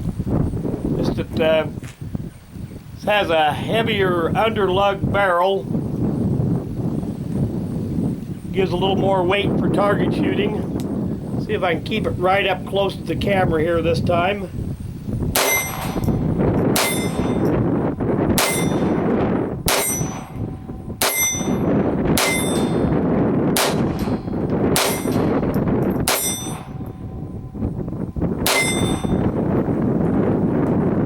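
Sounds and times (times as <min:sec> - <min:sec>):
wind noise on microphone: 0:00.0 - 0:31.0
pistol shots: 0:15.3 - 0:17.5, 0:18.4 - 0:19.1, 0:19.7 - 0:21.6, 0:22.2 - 0:22.9, 0:23.5 - 0:26.8, 0:28.4 - 0:29.2
short metallic ring: 0:15.4 - 0:16.2, 0:16.8 - 0:17.5, 0:18.4 - 0:19.0, 0:19.7 - 0:23.0, 0:23.8 - 0:25.4, 0:26.0 - 0:27.6, 0:28.5 - 0:29.3.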